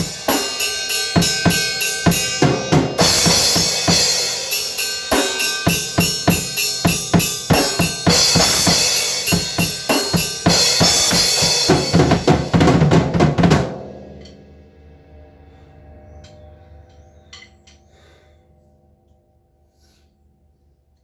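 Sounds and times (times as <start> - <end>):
drum kit beat: 0.0 - 14.6.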